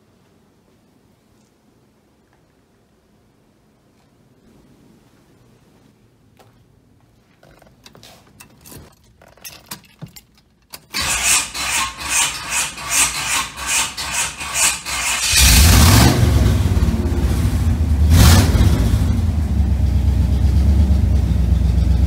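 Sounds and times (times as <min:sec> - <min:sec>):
keys rattling and clicking: 0:07.3 - 0:11.0
starter motor cranking engine: 0:10.9 - 0:16.9.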